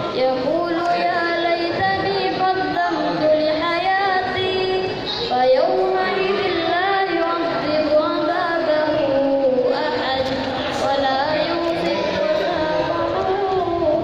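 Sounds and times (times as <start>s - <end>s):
person chanting recitation: 0.0s - 14.0s.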